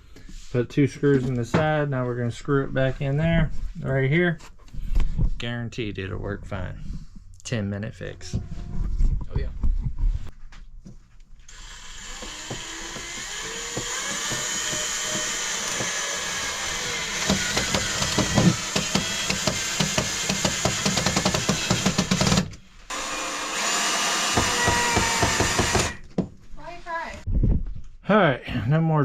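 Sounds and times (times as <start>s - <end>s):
power drill driving screws: 11.5s - 26.0s.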